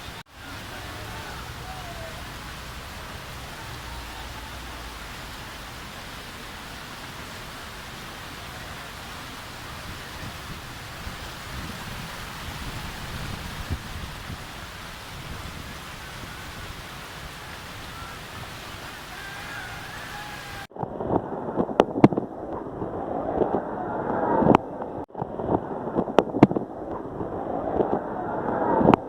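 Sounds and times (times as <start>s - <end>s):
heavy rain hissing: 0.0s - 20.7s.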